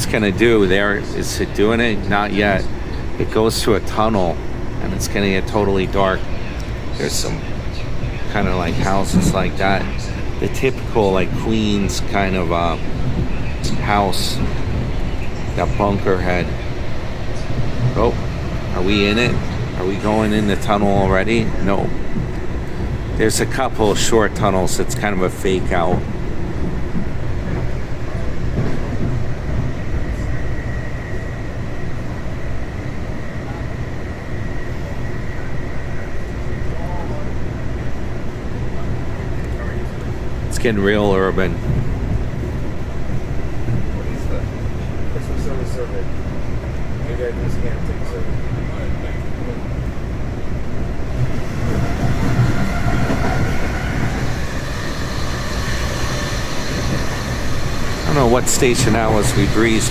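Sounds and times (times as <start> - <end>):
train rumbling: 0.0 - 59.9
faint high whine: 51.2 - 59.9.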